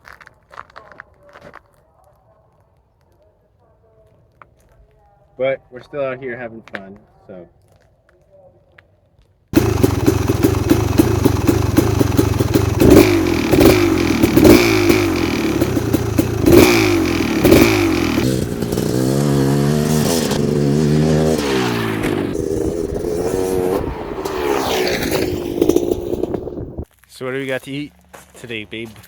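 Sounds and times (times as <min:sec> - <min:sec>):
dirt bike engine revving: 0:09.6 - 0:26.9.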